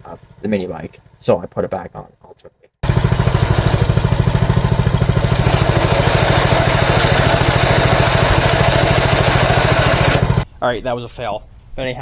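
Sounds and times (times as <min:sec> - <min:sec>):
small gas engine putter: 0:02.8 - 0:10.5.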